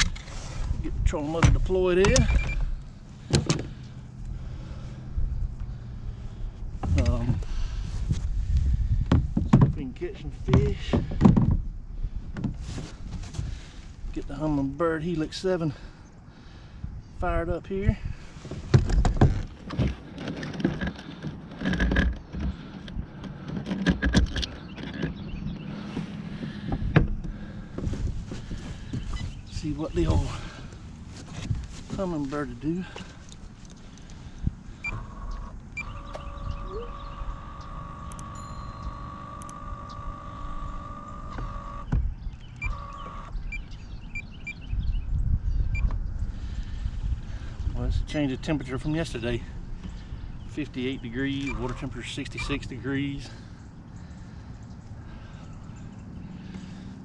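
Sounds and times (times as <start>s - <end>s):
wind rumble on microphone: 0.0s - 39.1s, 40.1s - 52.8s
birds chirping: 20.7s - 57.0s
faint steady hum: 32.8s - 41.9s
electric motor whining: 34.8s - 41.9s, 42.6s - 43.4s.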